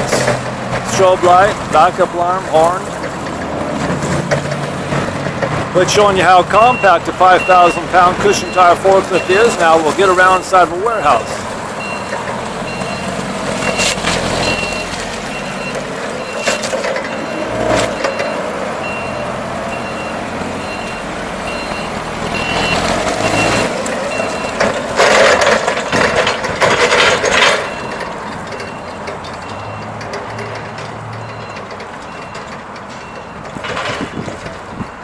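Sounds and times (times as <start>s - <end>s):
forklift engine running: 0.0s - 35.0s
backup alarm beeping: 6.5s - 24.6s, 27.6s - 30.6s, 31.2s - 33.5s.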